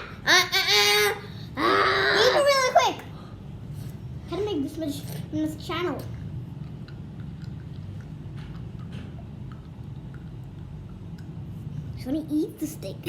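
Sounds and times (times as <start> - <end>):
person chewing sticky chocolate: 6.6 - 11.5.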